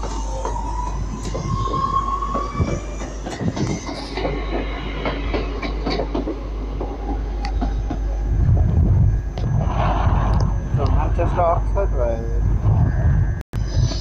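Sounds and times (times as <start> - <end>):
train wheels clicking over rail joints: 0.0 - 8.2
thin steady wheel squeal: 0.0 - 8.4.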